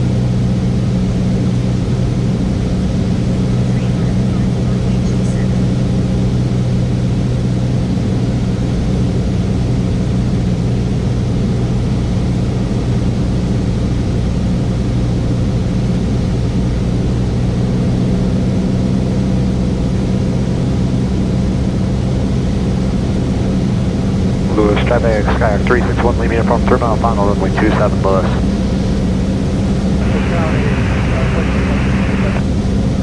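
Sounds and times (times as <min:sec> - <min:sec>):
airplane engine droning: 0:00.0 - 0:33.0.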